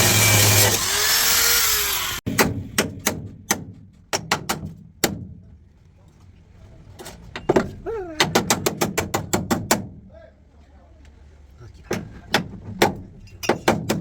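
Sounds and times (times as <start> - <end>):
power tool running: 0.0 - 2.2.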